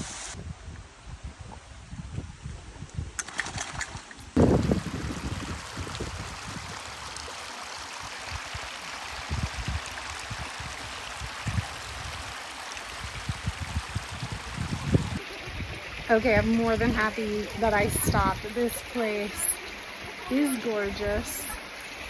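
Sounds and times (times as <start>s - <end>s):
waterfall rushing: 4.4s - 22.0s.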